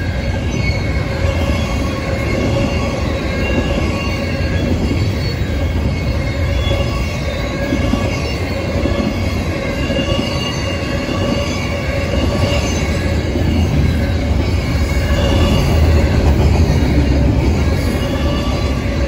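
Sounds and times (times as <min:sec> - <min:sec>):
high-pitched wheel squeal: 0:00.0 - 0:19.0
steel wheels rumbling on rail: 0:00.0 - 0:19.0.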